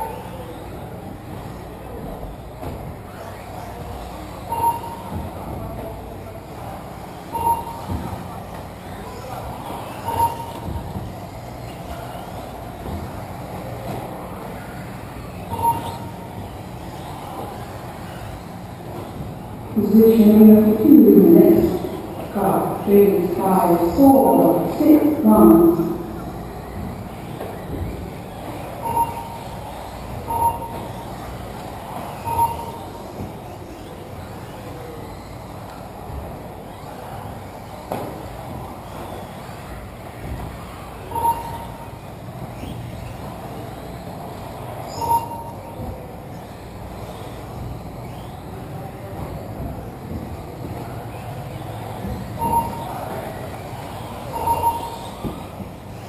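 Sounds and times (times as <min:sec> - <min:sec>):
rc buggies racing: 0:00.0 - 0:20.8, 0:21.6 - 0:56.0
rc cars racing on dirt: 0:32.9 - 0:41.1.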